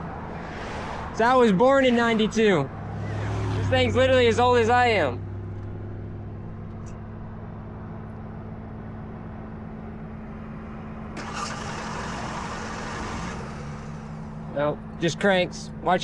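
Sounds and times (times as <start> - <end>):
broad rushing noise: 0.0 - 5.2
vehicle engine idling: 2.7 - 16.0.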